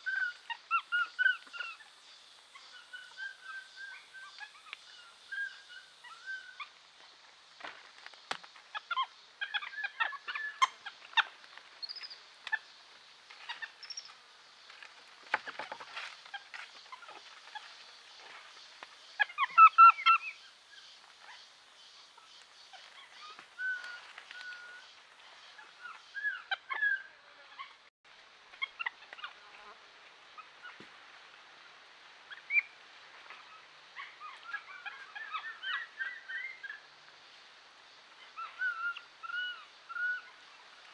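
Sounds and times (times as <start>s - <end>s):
steady high hiss: 0.0s - 9.4s.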